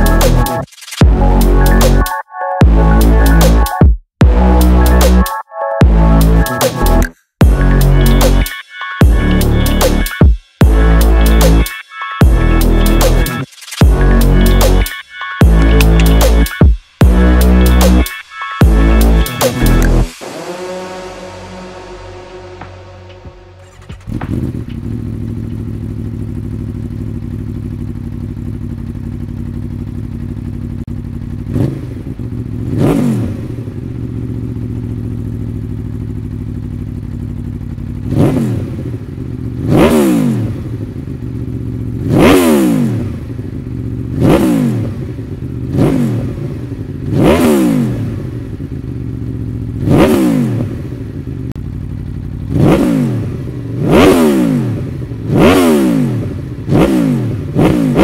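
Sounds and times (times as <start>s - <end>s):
engine revving throttle blips: 10.7s - 27.8s, 38.0s - 51.6s, 52.5s - 58.0s
motorcycle engine idling: 23.1s - 42.2s, 42.9s - 47.2s, 48.1s - 49.9s, 50.7s - 53.8s.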